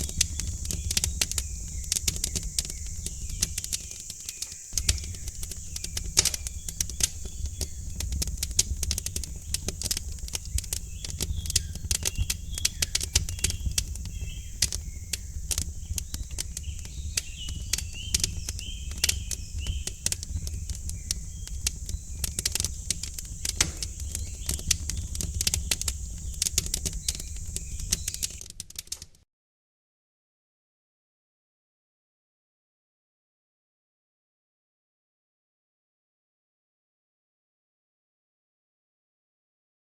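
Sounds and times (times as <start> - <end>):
small birds chirping: 0.0 - 29.0
wood fire crackling and popping: 0.0 - 29.2.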